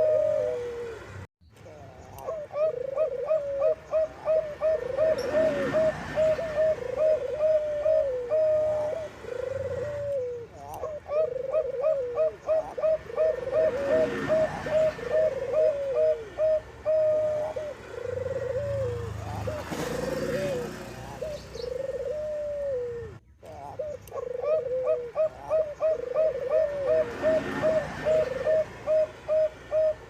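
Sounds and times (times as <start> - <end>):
doves cooing: 0.0 - 30.0.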